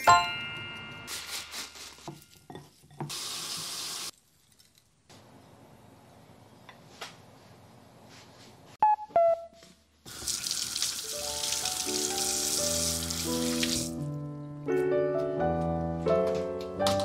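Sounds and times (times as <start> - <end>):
tap water running into sink: 10.1 - 14.0.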